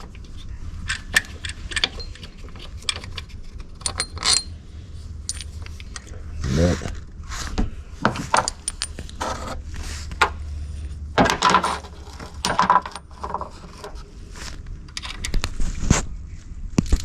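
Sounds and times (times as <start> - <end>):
metal tools clinking and scraping: 0.0 - 4.6, 5.2 - 6.1, 8.0 - 9.6, 11.2 - 14.0.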